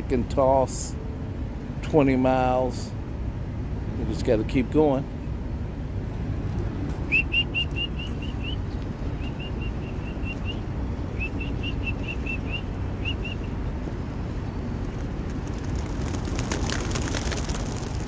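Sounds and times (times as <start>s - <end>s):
songbird whistling: 7.1s - 13.6s.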